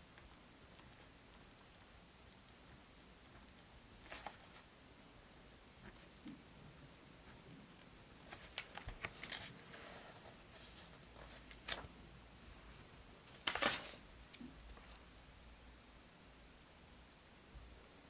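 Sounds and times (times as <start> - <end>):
paper and stationery clicks and taps: 2.7 - 4.5.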